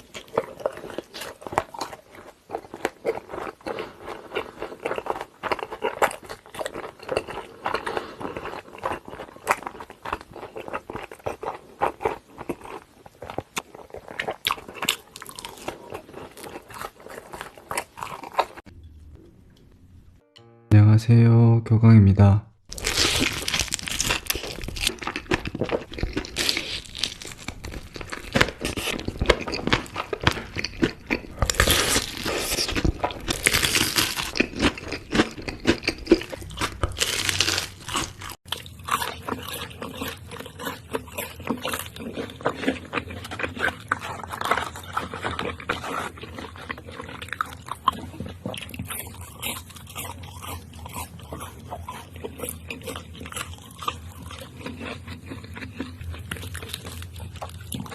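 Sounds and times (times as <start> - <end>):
chewing crunchy fried food: 0.0 - 18.7, 22.7 - 57.9.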